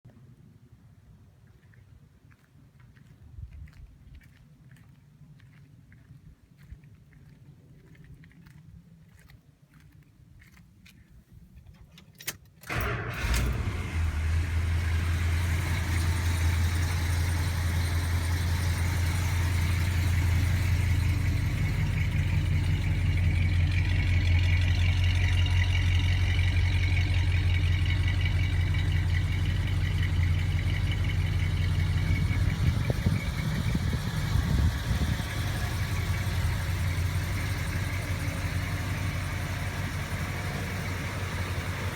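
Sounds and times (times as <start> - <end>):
car engine starting and idling: 11.8 - 41.9.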